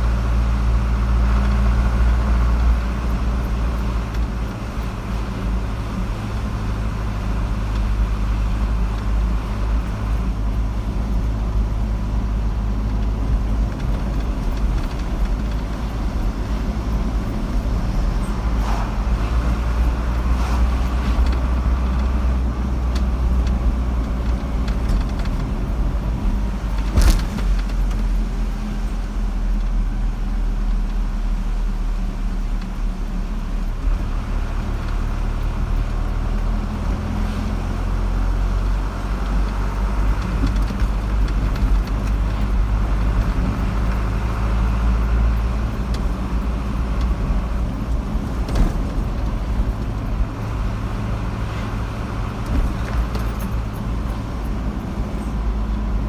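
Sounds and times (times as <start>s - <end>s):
car engine hum: 0.0s - 56.0s
tyre rumble: 13.1s - 28.4s.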